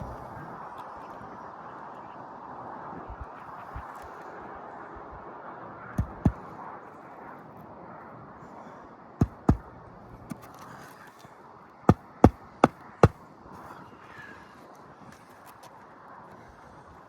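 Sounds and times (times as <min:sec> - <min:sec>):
hammer striking shingle roof: 0:06.0 - 0:06.4, 0:09.2 - 0:09.6, 0:11.9 - 0:13.2.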